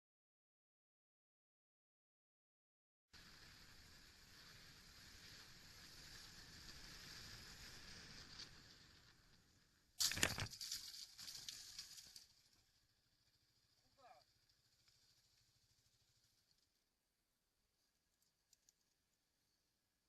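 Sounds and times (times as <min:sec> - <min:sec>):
crunching and scraping: 0:10.0 - 0:12.3.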